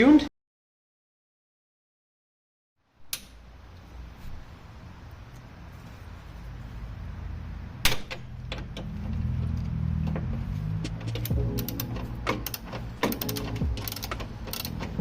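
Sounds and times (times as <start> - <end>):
socket ratchet clicking: 10.9 - 15.0.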